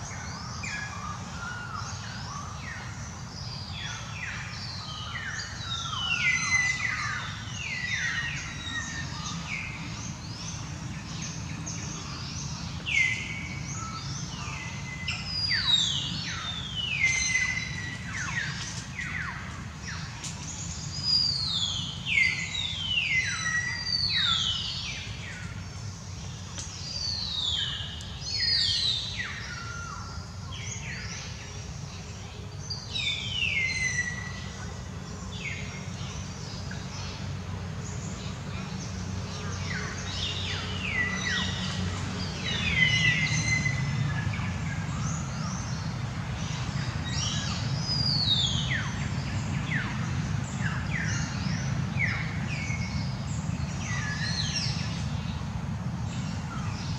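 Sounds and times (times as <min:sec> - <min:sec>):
birds singing: 0:00.0 - 0:56.9.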